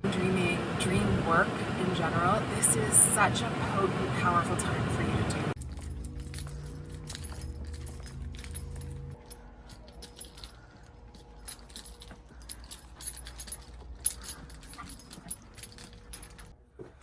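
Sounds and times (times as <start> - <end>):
car engine idling: 0.0 - 5.6
metallic jingling and clicking: 0.1 - 16.6.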